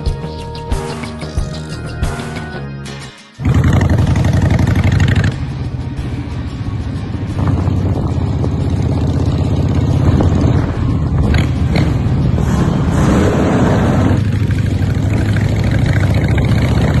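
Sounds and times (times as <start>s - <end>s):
motorcycle engine running: 3.4s - 12.4s, 13.4s - 17.0s.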